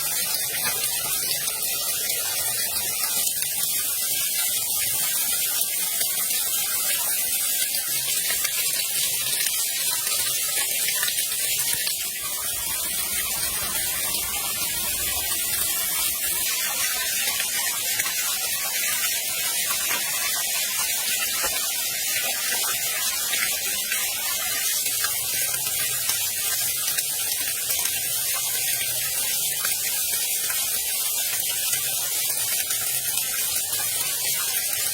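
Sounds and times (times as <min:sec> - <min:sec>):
waterfall rushing: 0:11.8 - 0:19.1.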